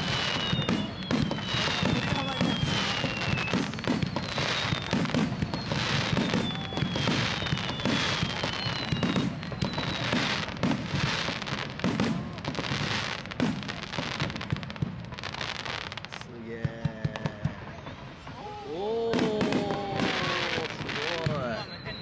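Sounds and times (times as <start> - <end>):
falling firework whistle: 0.0 - 22.0
firework shell bursts and crackles: 0.0 - 22.0.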